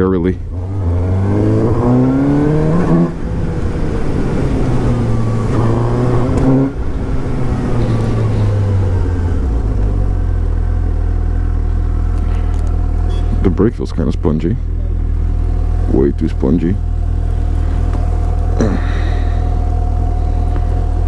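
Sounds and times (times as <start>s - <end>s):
motorcycle engine accelerating hard: 0.5s - 21.0s.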